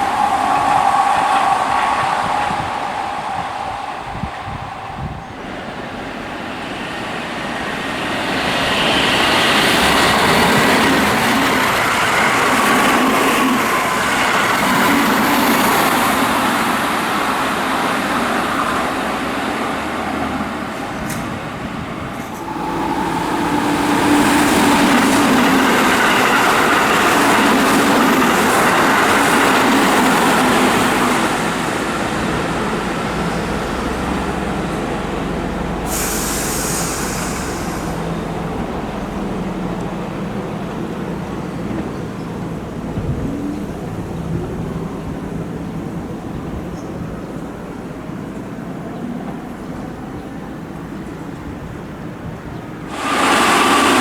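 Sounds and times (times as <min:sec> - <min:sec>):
train wheels clattering on rail: 0:00.0 - 0:54.0.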